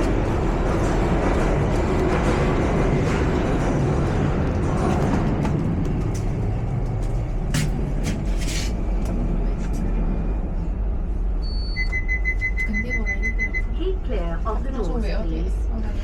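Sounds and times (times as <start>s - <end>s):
low rumble: 0.0s - 16.0s
voices: 12.6s - 16.0s.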